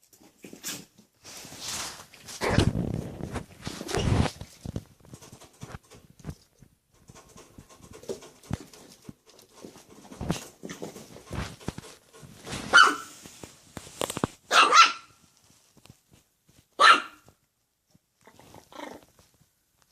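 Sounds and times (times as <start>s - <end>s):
light scuffling and clicks: 3.2s - 14.4s, 15.1s - 17.4s
dog barking: 12.7s - 13.1s, 14.5s - 15.2s, 16.8s - 17.2s.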